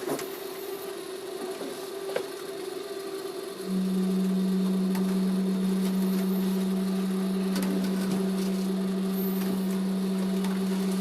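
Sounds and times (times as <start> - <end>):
low equipment hum: 0.0 - 11.0
faint higher hum: 2.6 - 11.0.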